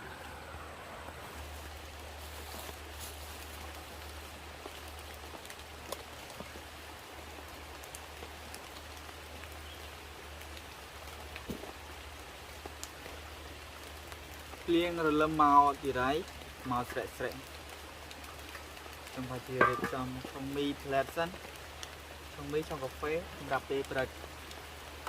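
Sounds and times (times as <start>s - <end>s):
rain falling: 0.0s - 25.0s.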